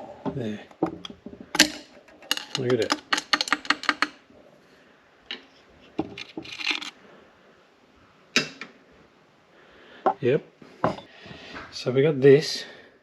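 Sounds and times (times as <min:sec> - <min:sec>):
metal parts clinking and rattling: 0:01.5 - 0:04.2, 0:05.3 - 0:07.0.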